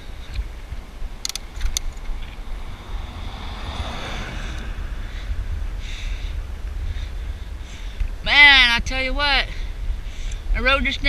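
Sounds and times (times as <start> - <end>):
wind rumbling on microphone: 0.0 - 11.0
car passing: 0.7 - 8.2
sharp clicks: 1.2 - 2.4.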